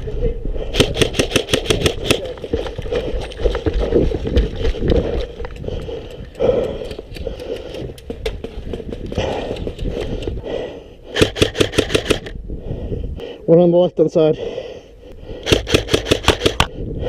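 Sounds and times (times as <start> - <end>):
footsteps: 1.9 - 10.4
airsoft rifle burst: 11.2 - 12.3.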